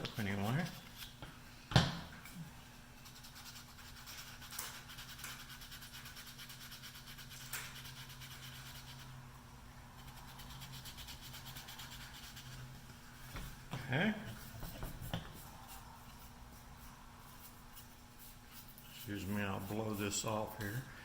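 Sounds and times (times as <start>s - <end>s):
sandpaper scratching on wood: 3.0s - 9.1s, 10.0s - 12.6s, 14.3s - 20.8s.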